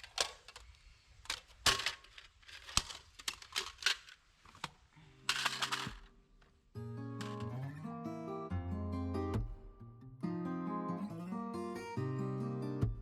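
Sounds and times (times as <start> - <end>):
camping gear clicks and knocks: 0.0 - 6.6, 7.2 - 7.6.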